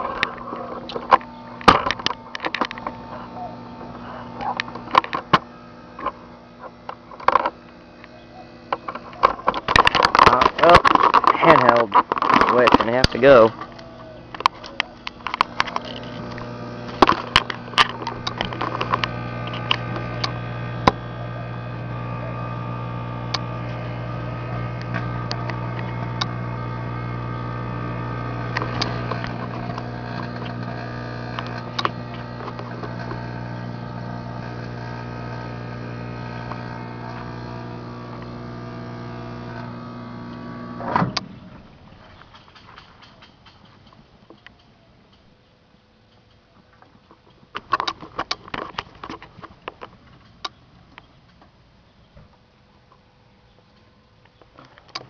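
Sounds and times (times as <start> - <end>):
electrical arcing crackles: 0.0 - 41.0
microwave oven humming: 0.0 - 42.0.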